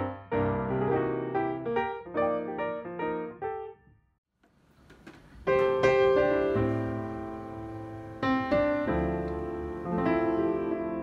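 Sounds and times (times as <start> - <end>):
piano chords: 0.0 - 4.0, 5.4 - 11.0.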